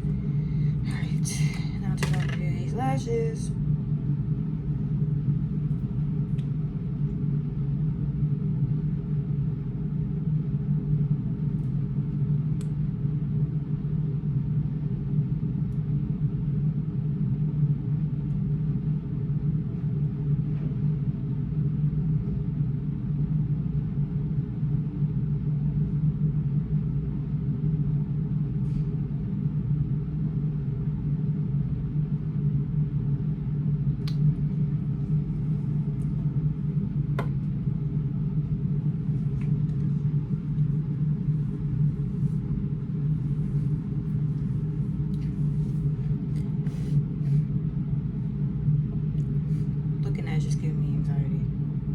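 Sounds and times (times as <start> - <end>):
car cabin rumble and hum: 0.8 - 3.5.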